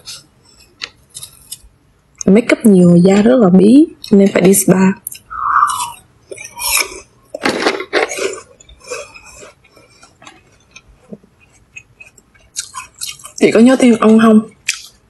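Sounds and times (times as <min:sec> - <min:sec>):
person chewing food: 0:00.0 - 0:01.8, 0:05.1 - 0:13.4, 0:14.5 - 0:15.0.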